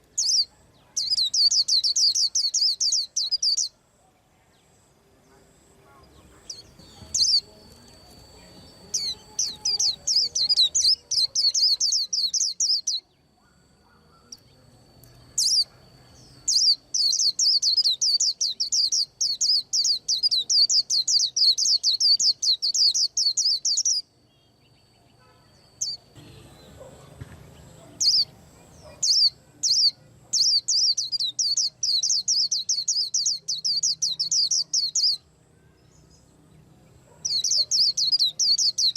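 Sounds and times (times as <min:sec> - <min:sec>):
bird singing high notes: 0:06.5 - 0:13.2.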